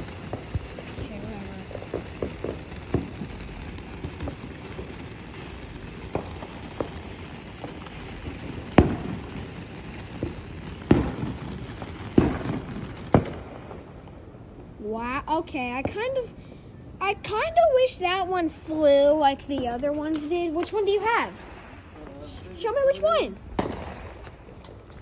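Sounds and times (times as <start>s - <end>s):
firework pops and cracks: 0.0s - 16.3s, 16.9s - 25.0s.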